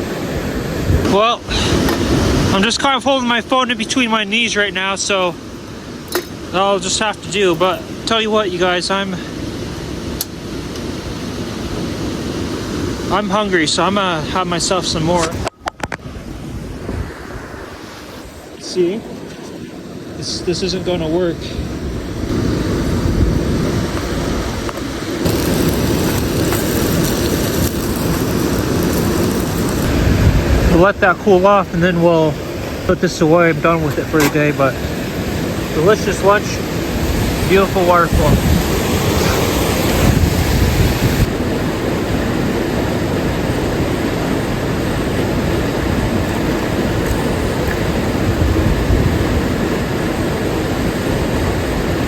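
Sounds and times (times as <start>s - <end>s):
waterfall roaring: 19.8s - 52.0s.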